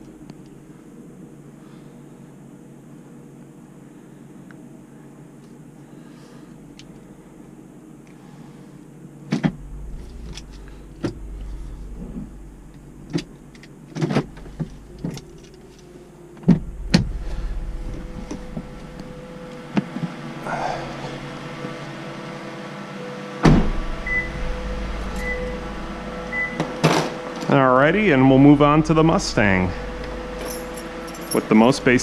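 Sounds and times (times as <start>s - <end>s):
deep rumble: 9.4s - 22.4s, 23.4s - 32.0s
car engine idling: 9.5s - 22.6s, 23.3s - 32.0s.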